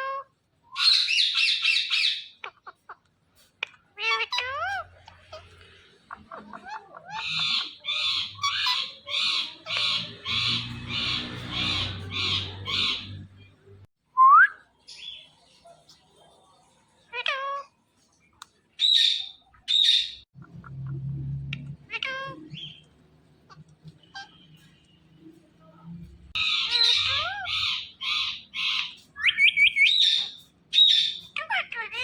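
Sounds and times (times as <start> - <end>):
parrot shrill calls: 0.0 - 2.7, 4.0 - 5.5, 6.6 - 13.3, 26.4 - 32.0
parrot squawking: 0.0 - 3.0, 3.6 - 13.8, 18.8 - 22.9, 23.5 - 24.7, 26.3 - 32.0.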